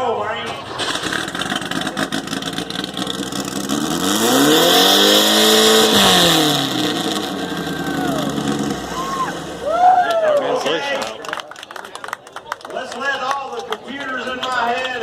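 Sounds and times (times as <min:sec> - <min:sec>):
van engine revving: 0:00.5 - 0:09.8.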